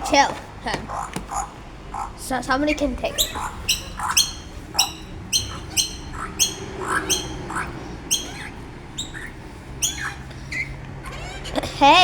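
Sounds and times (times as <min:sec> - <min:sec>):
baby birds begging squawks: 0:00.1 - 0:12.0
small bird chirps: 0:02.7 - 0:11.6.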